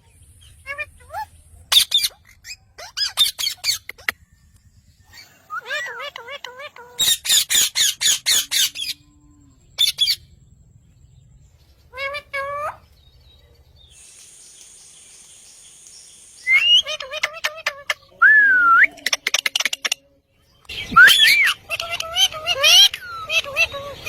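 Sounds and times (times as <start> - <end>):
parrot rapid chattering calls: 0.4 - 4.2, 5.2 - 9.0, 9.8 - 10.2, 16.6 - 18.2, 18.9 - 20.0, 20.7 - 24.0
parrot squawks: 5.6 - 9.0, 21.0 - 24.0
parrot whistle rising and falling: 16.4 - 16.9, 21.0 - 21.6.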